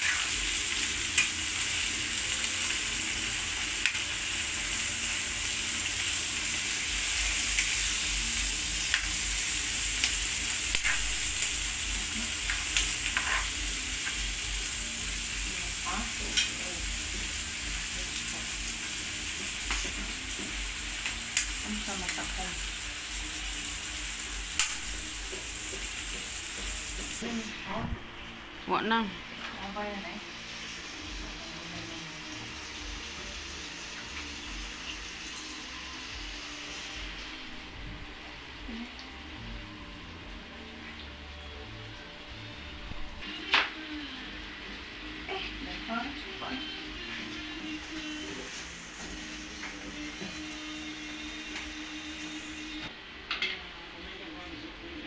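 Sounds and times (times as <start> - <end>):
squid sizzling in a wok: 0.0 - 27.6, 29.3 - 53.6.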